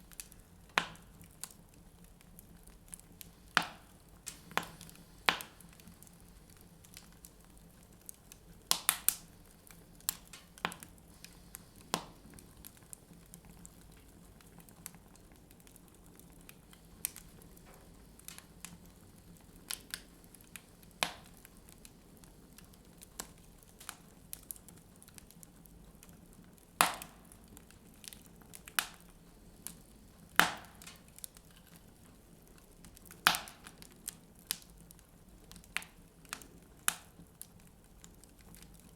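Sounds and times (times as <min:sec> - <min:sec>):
wood fire crackling and popping: 0:00.0 - 0:38.9.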